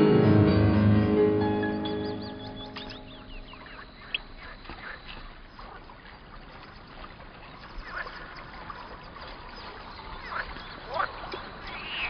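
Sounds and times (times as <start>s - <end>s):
piano music: 0.0s - 3.9s
birds chirping: 0.0s - 12.0s.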